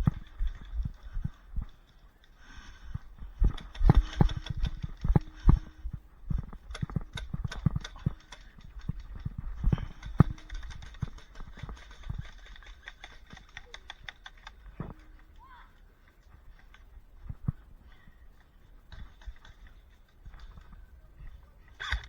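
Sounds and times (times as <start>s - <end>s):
heavy footsteps: 2.6s - 11.8s
gear knocking: 3.3s - 15.2s.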